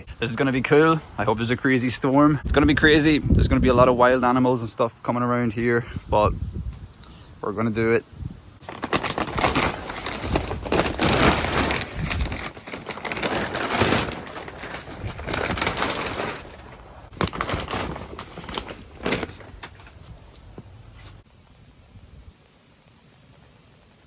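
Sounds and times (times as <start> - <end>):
wind gusts: 0.0 - 24.0
rustling and crackling: 8.6 - 23.7.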